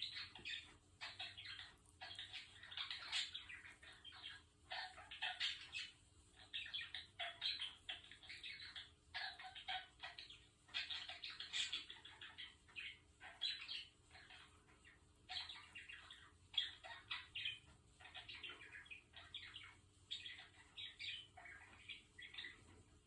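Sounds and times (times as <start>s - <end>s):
budgerigar chattering: 0.0s - 14.5s.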